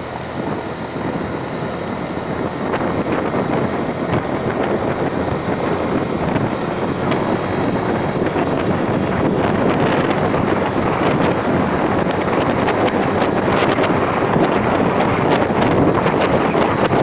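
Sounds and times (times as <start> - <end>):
moving vehicle running noise: 0.0 - 17.0
wind buffeting microphone: 0.0 - 17.0.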